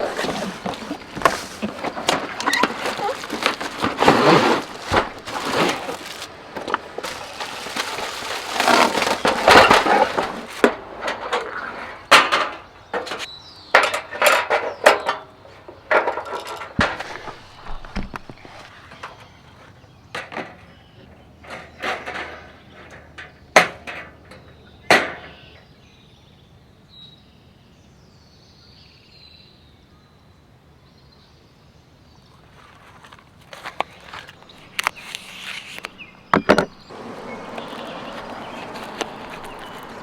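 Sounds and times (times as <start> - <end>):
rustling: 0.0 - 13.3, 15.9 - 19.8, 32.3 - 40.0
cooking gear knocking and clinking: 0.0 - 18.6.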